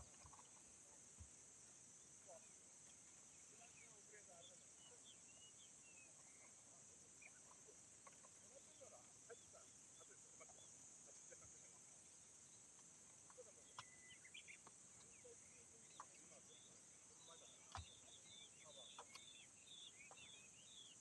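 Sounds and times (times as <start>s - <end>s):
high insect drone: 0.0s - 21.0s
faint clicks: 12.6s - 15.3s, 17.6s - 20.4s
short bird calls: 13.3s - 21.0s.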